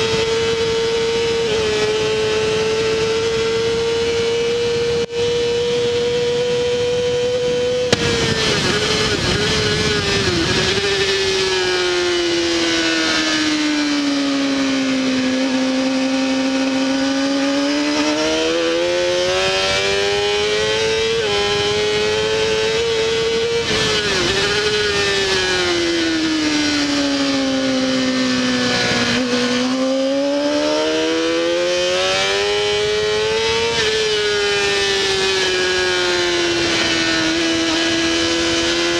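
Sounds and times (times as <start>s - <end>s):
wind rush: 0.0s - 15.6s
motorcycle engine revving: 0.0s - 38.9s.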